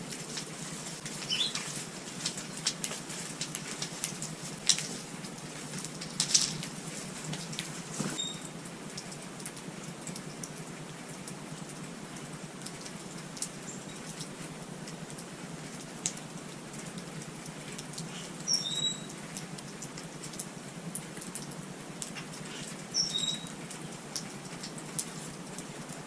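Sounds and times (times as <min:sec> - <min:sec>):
light ticks and clicks: 0:00.1 - 0:07.8, 0:08.9 - 0:18.3, 0:19.0 - 0:22.8
small birds chirping: 0:01.2 - 0:01.7, 0:18.0 - 0:19.2, 0:22.2 - 0:24.0.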